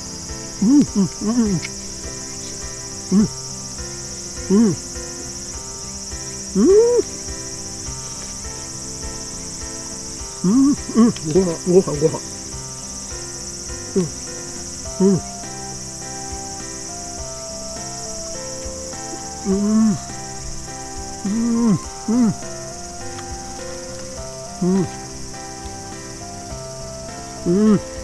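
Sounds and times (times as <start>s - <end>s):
high-pitched insect buzz: 0.0s - 28.0s
soft background music: 0.0s - 28.0s
person humming while eating: 0.6s - 1.7s, 3.1s - 3.3s, 4.5s - 4.9s, 6.6s - 7.1s, 10.4s - 12.2s, 13.9s - 14.2s, 14.9s - 15.4s, 19.2s - 20.3s, 21.2s - 23.3s, 24.4s - 25.1s, 27.4s - 28.0s.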